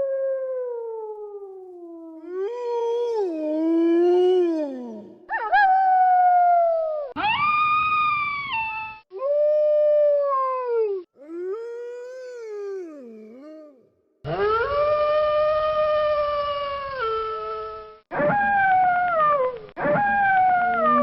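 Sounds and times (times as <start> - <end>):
wolves howling: 19.8 - 21.0.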